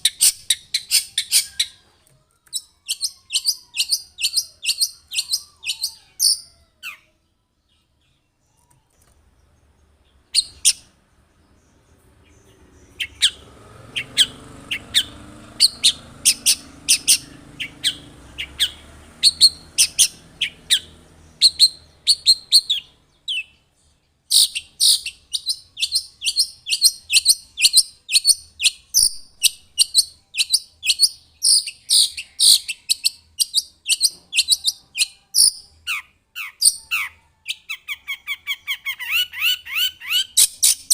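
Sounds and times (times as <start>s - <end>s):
bird singing sharp high chirps: 0.0s - 7.1s, 7.7s - 40.9s.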